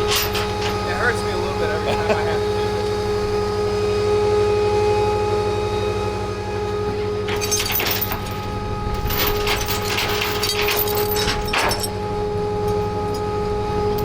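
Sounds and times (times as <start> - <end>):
metal and plastic scraping: 0.0 - 1.9, 6.8 - 12.0
tow truck engine humming: 0.0 - 14.0.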